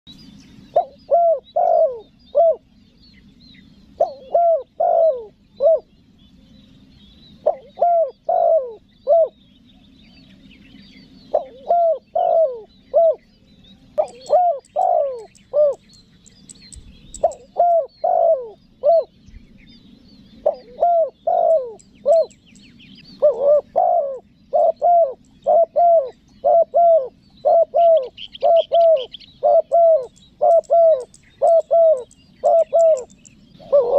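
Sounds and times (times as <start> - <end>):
small birds chirping: 0.1 - 33.9
dove cooing: 0.6 - 2.7, 3.9 - 6.0, 7.3 - 9.4, 11.2 - 13.3, 14.0 - 15.9, 17.0 - 19.2, 20.3 - 22.4, 23.1 - 33.9.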